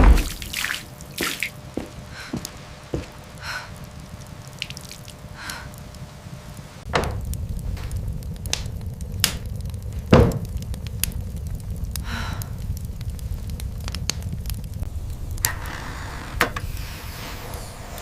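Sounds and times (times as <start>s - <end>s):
heavy thud: 0.0s - 0.5s, 6.9s - 8.6s, 9.8s - 10.6s
water dripping: 0.0s - 3.1s, 4.2s - 5.6s
steady low rumble: 0.0s - 18.0s.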